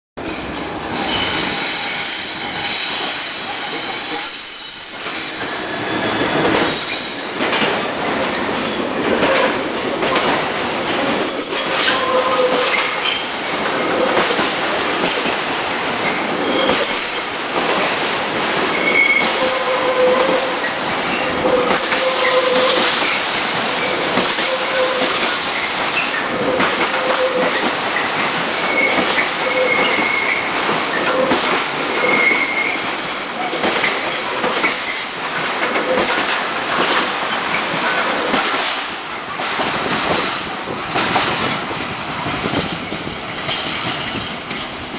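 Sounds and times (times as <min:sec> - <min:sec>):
train rattling past: 0:00.2 - 0:44.9
wheels squealing: 0:16.0 - 0:17.4, 0:18.7 - 0:20.3, 0:28.6 - 0:30.5
wheels clicking over rail joints: 0:33.4 - 0:44.9.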